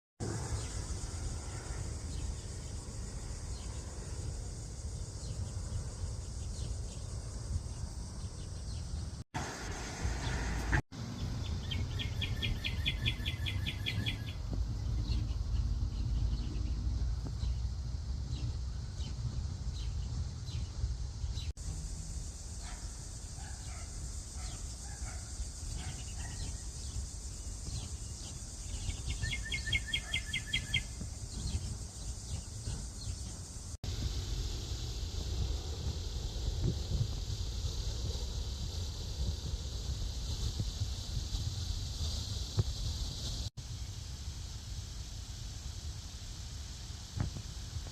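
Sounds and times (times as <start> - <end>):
songbird trill: 0.2 - 44.0
faint bird chirps: 11.2 - 17.7, 24.4 - 33.4.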